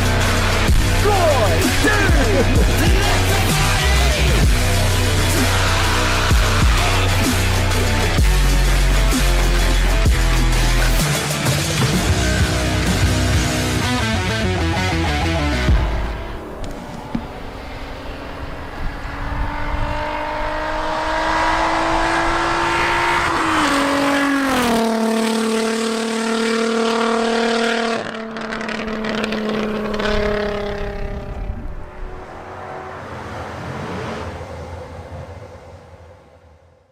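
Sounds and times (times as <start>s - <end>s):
car engine revving: 0.0s - 36.2s.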